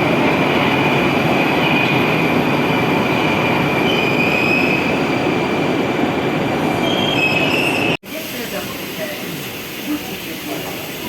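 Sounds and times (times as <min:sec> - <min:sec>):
train rumbling on track: 0:00.0 - 0:11.0
steel wheels squealing: 0:03.4 - 0:05.0, 0:06.7 - 0:08.0.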